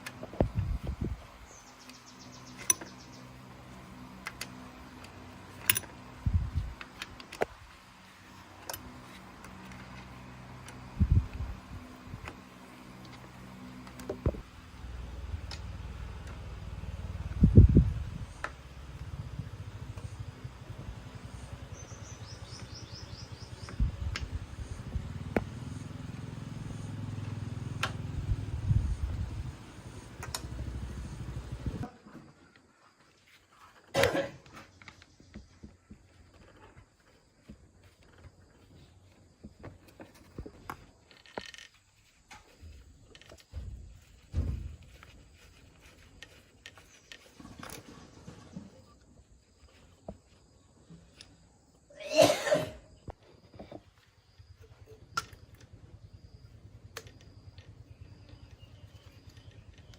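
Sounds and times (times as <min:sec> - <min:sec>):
small motorcycle engine running: 0:01.8 - 0:31.9, 0:54.3 - 0:59.9
metallic clicks of tools: 0:04.2 - 0:06.0.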